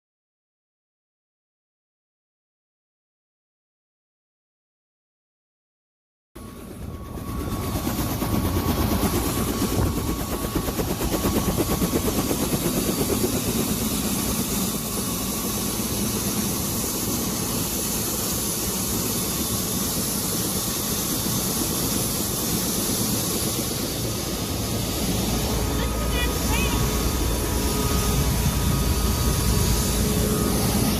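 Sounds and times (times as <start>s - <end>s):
helicopter engine and rotor drone: 6.4s - 30.9s.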